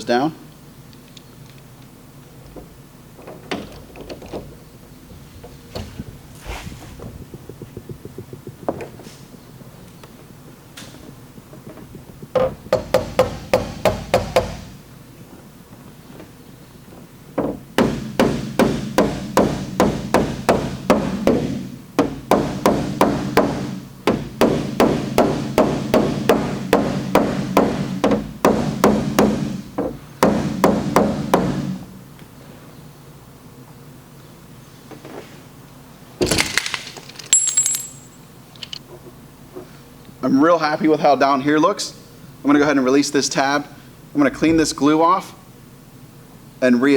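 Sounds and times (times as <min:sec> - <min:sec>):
hammer tapping on sheet metal: 0:12.3 - 0:14.7, 0:17.4 - 0:31.8.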